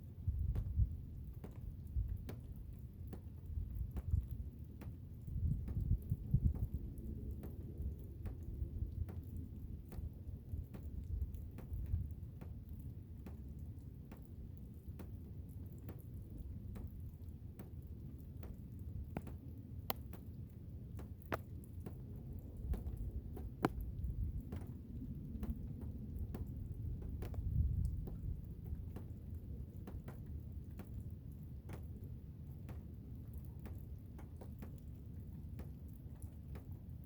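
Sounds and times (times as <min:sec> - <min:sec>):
sharp ticks and taps: 0:00.4 - 0:07.6, 0:08.2 - 0:10.1, 0:10.7 - 0:12.6, 0:13.2 - 0:14.3, 0:14.9 - 0:29.1, 0:29.8 - 0:31.0.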